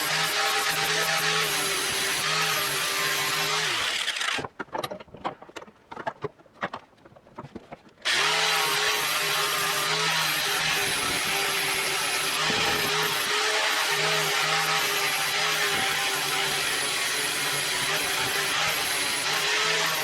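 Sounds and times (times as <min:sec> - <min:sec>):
power tool motor running: 0:00.0 - 0:04.5, 0:08.1 - 0:20.0
scattered clicks and knocks: 0:04.3 - 0:08.0.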